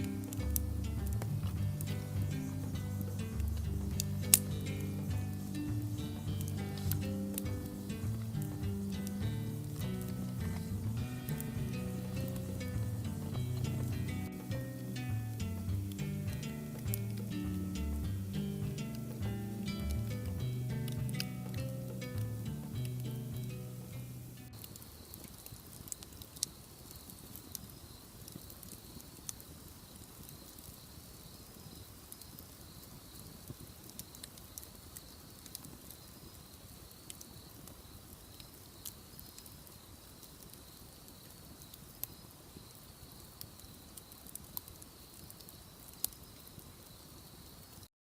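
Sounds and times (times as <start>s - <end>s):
sharp fire pops: 0.0s - 47.0s
bonfire crackling: 0.0s - 47.9s.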